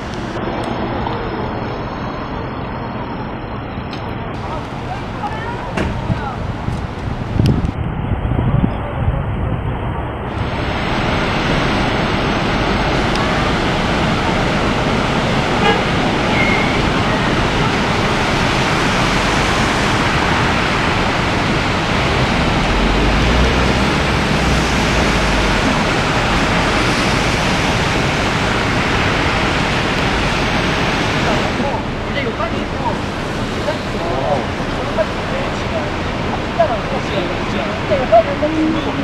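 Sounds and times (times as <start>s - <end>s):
floodwater rushing: 10.2s - 39.0s.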